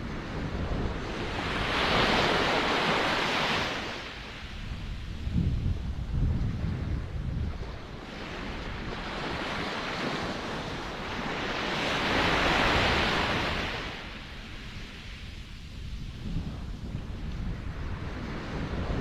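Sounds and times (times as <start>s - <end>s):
wind rumble on microphone: 0.0s - 19.0s
ocean wave rushing: 8.0s - 14.8s.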